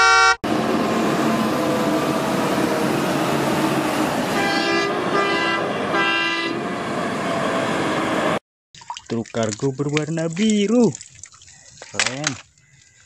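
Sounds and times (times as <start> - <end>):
short horn toots: 0.0 - 0.4.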